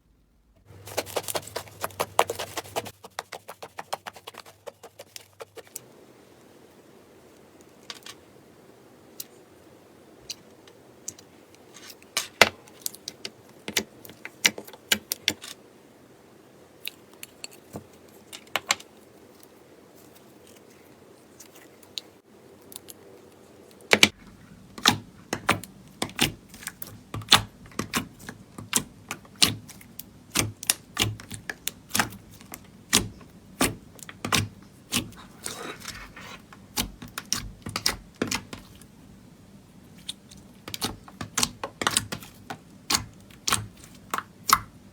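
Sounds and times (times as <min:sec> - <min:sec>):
slime clicking and popping: 0:40.1 - 0:44.8.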